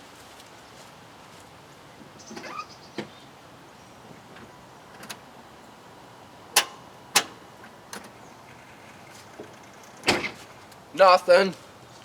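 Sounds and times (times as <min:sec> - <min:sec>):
car starter clicking: 0:06.5 - 0:08.2.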